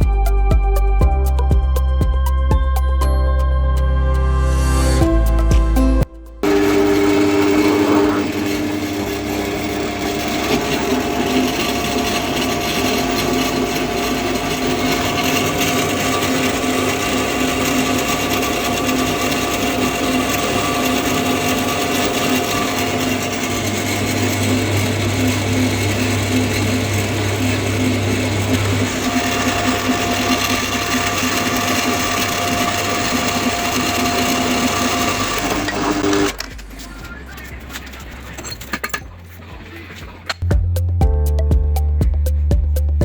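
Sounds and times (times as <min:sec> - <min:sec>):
power tool running: 0:04.6 - 0:36.5.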